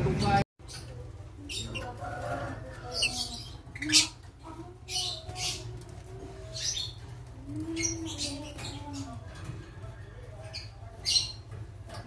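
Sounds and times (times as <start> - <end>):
lovebirds chirping: 0.2 - 9.4.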